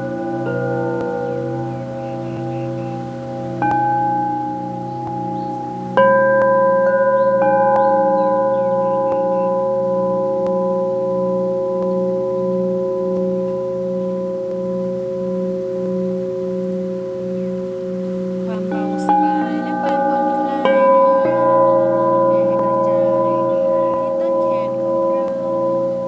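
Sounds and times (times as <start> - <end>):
singing bowls struck and ringing: 18.5 - 26.0.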